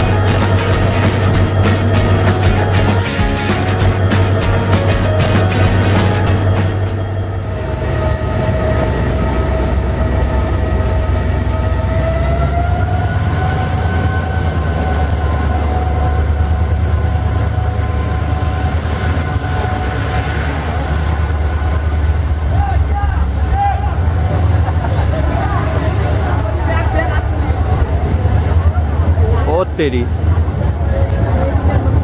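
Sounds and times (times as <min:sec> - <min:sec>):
high whine: 0:00.0 - 0:22.7
train coaches rumbling: 0:00.0 - 0:32.0.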